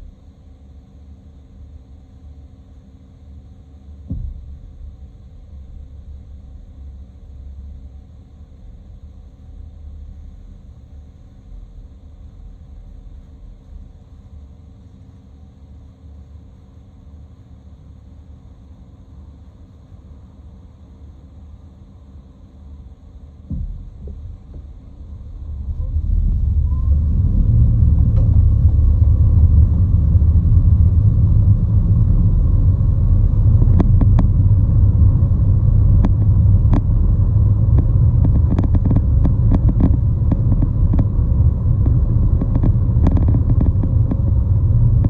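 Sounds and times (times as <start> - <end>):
vehicle low rumble: 3.9 - 14.6, 22.8 - 45.0
sharp clicks and ticks: 26.5 - 45.0.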